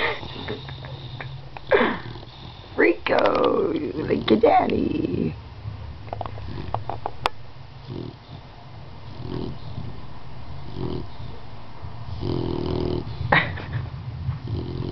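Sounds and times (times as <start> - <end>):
dog snoring: 0.0 - 5.4, 6.3 - 7.0, 7.8 - 11.4, 12.1 - 13.6, 14.4 - 14.9.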